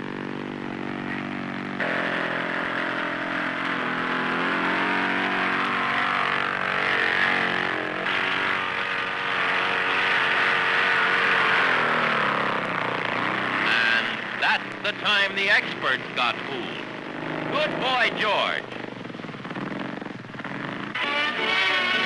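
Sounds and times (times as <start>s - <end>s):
propeller aircraft engine droning: 0.0s - 22.0s.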